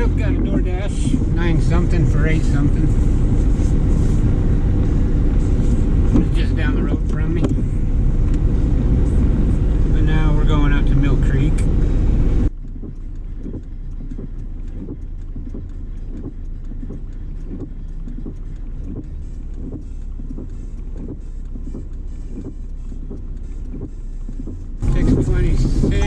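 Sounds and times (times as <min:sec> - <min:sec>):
car road noise rumble: 0:00.0 - 0:26.0
faint ticks: 0:11.6 - 0:26.0.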